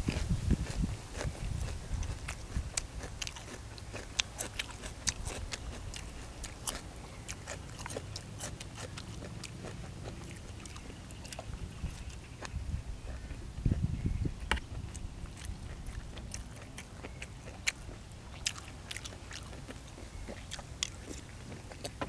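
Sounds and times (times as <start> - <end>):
person chewing and eating: 0.0 - 22.0.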